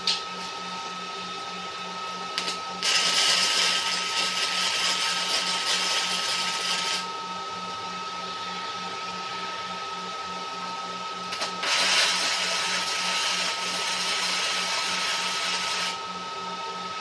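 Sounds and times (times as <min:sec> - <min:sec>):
steady machine hum: 0:00.0 - 0:17.0
welding arc crackling and hissing: 0:02.4 - 0:07.1, 0:11.3 - 0:16.0.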